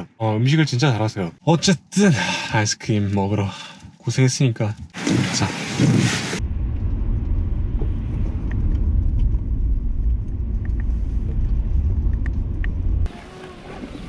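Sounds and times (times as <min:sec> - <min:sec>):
car driving rumble: 0:06.4 - 0:14.0.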